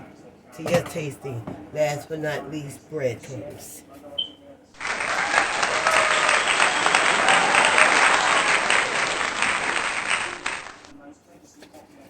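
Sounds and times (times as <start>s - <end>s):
clapping applause: 4.8s - 11.0s.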